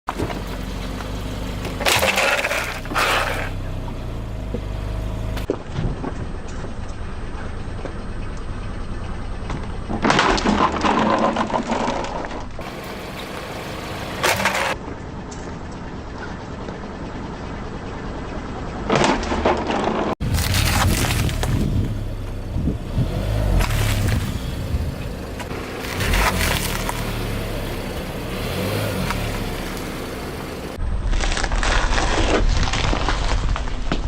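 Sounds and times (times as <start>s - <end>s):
tyres crunching objects: 0.1s - 4.7s, 14.1s - 14.8s, 18.9s - 30.0s, 30.6s - 34.0s
car engine running: 0.1s - 30.8s.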